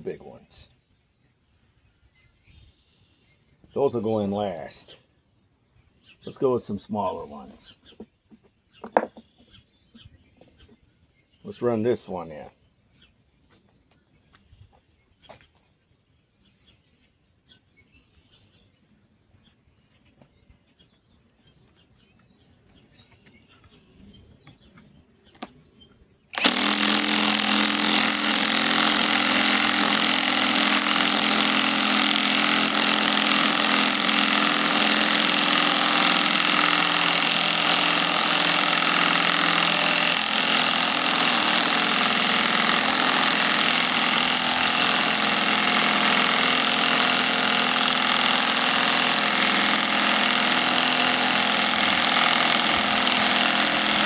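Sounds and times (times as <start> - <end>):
impact wrench hammering: 26.4 - 54.0.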